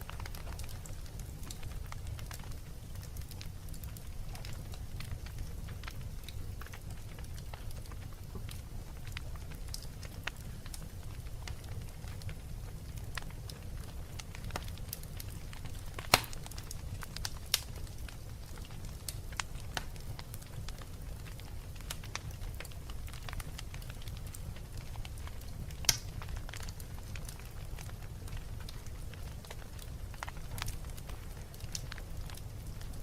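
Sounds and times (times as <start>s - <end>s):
low fire rumble: 0.0s - 33.0s
wood fire crackling: 0.0s - 33.0s
sharp loud fire pops: 16.0s - 16.4s.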